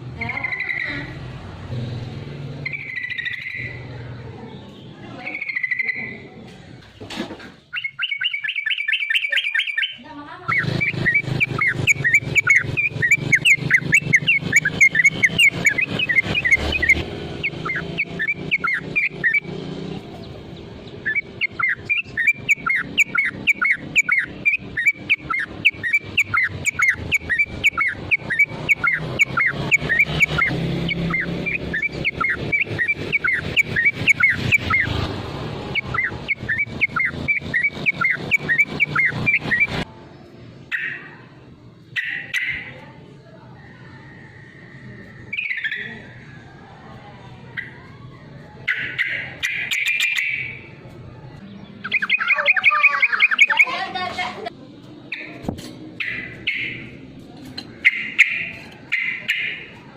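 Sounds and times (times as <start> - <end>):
bird sharp chirping call: 0.2 - 1.2, 2.6 - 4.0, 4.6 - 6.3, 7.6 - 35.0, 35.7 - 39.9, 41.9 - 42.9, 44.7 - 46.3, 48.6 - 50.8, 51.5 - 53.9, 55.1 - 57.0, 57.6 - 59.8.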